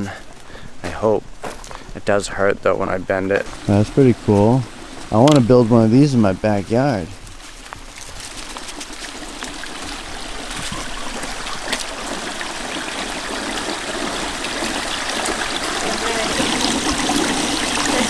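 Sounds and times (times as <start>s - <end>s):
water trickling in garden fountain: 3.1s - 7.2s, 7.8s - 18.0s.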